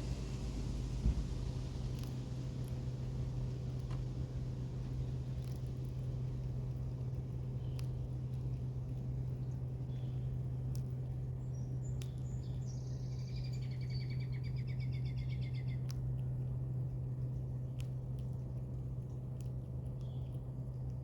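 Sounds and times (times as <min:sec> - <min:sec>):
steady low hum: 0:00.0 - 0:21.0
songbird trilling: 0:11.5 - 0:15.8.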